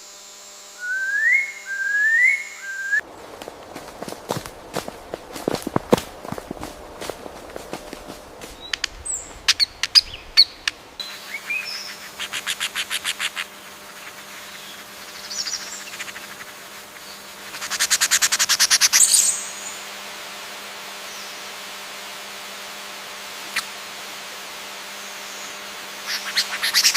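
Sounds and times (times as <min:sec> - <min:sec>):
songbirds chirping: 0:02.3 - 0:17.4
steady hiss: 0:02.6 - 0:26.9
sharp clicks: 0:08.6 - 0:10.8
bird trills: 0:08.6 - 0:13.5.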